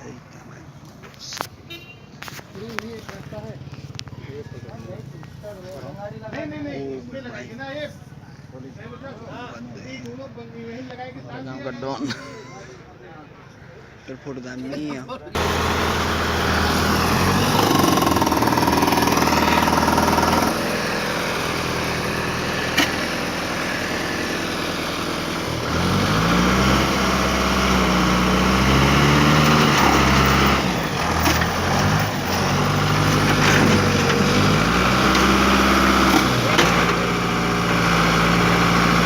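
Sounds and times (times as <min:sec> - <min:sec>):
crane engine revving: 0:15.4 - 0:39.0.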